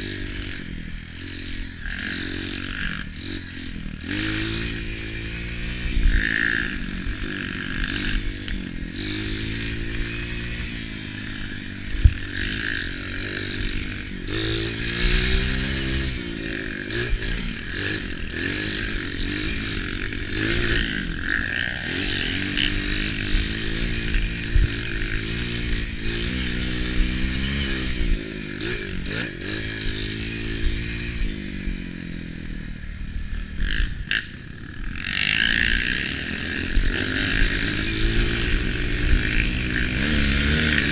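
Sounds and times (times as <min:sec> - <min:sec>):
motorcycle engines revving: 0:00.0 - 0:40.9.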